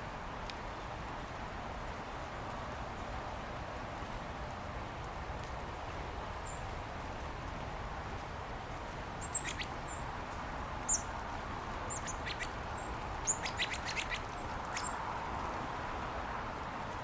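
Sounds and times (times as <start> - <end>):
songbirds chirping: 9.2 - 15.3.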